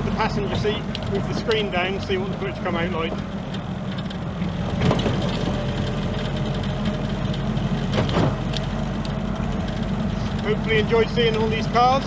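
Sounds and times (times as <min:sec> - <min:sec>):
jeep engine running: 0:00.0 - 0:12.0
short knocks or rattles: 0:07.8 - 0:08.8.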